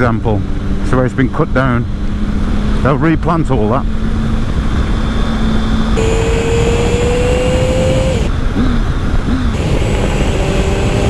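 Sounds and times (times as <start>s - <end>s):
motorcycle engine revving: 6.0s - 8.5s, 9.4s - 11.0s.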